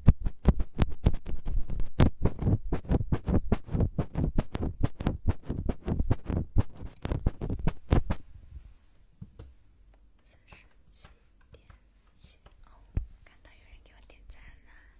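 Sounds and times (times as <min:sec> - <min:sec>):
tapping and scratching on microphone: 0:00.0 - 0:08.3, 0:11.5 - 0:14.5.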